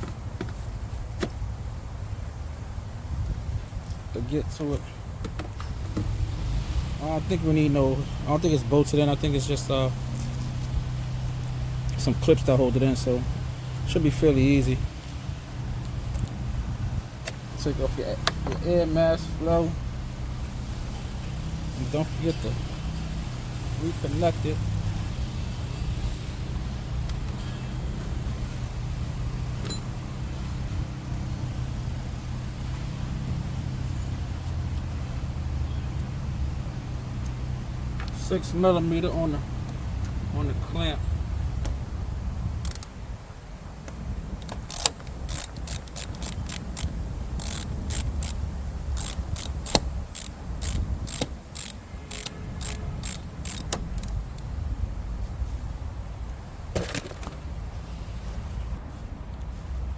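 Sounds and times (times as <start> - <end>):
ratchet wrench clicking: 44.4 - 54.5.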